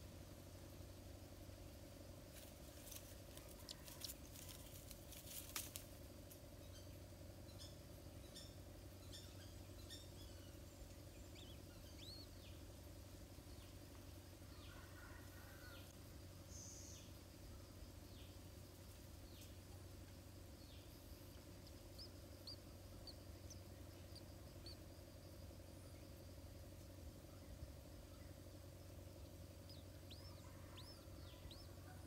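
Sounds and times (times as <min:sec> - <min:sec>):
steady low hum: 0:00.0 - 0:32.0
twigs clicking and rustling: 0:02.4 - 0:06.4.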